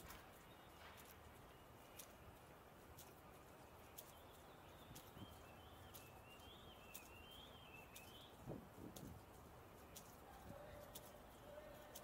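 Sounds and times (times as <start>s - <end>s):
faint high wavering chirps: 3.0s - 8.4s.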